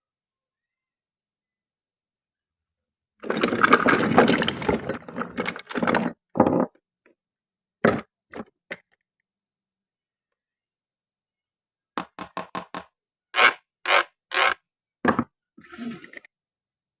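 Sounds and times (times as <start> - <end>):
toy fruit rasping and scraping: 13.4 - 14.6.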